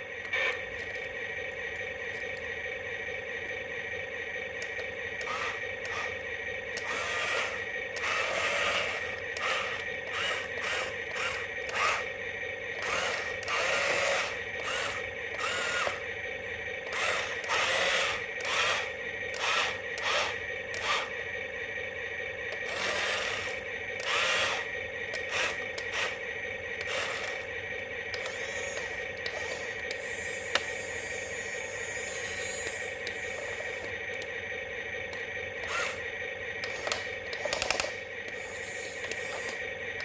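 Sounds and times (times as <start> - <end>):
small electric motor whirring: 4.5 - 21.4, 22.4 - 34.4, 35.0 - 40.0.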